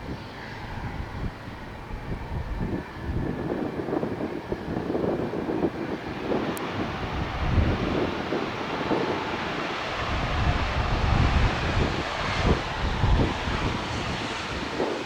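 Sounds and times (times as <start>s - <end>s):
jet engines running: 0.0s - 15.0s
wind buffeting microphone: 0.0s - 15.0s.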